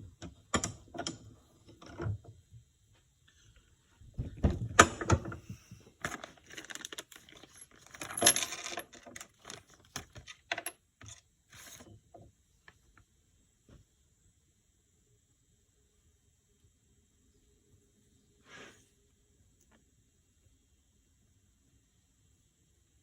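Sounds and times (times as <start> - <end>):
small metal parts clinking: 6.0 - 11.8.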